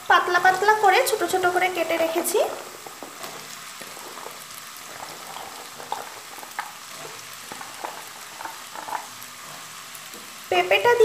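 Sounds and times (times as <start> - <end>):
potatoes sizzling in hot oil: 0.0 - 11.0.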